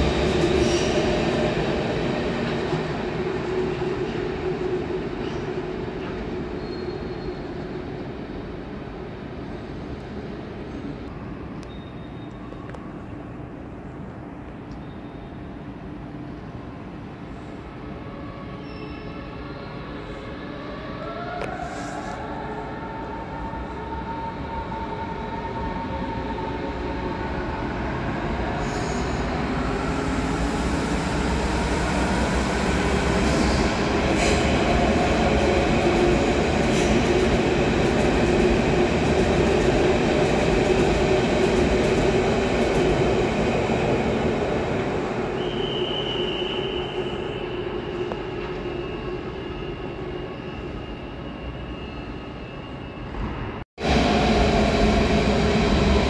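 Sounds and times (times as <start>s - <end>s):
electric train rumbling past: 0.0s - 8.5s, 22.3s - 51.8s, 52.6s - 56.0s.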